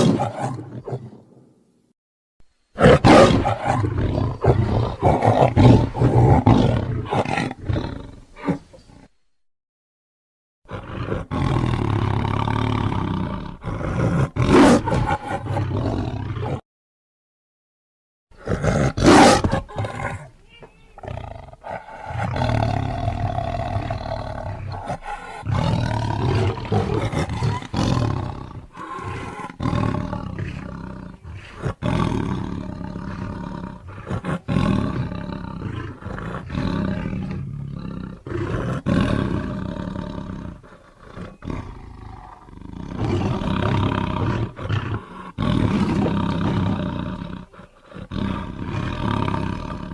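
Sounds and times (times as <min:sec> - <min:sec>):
creature roaring: 0:21.0 - 0:40.6, 0:41.2 - 0:49.9.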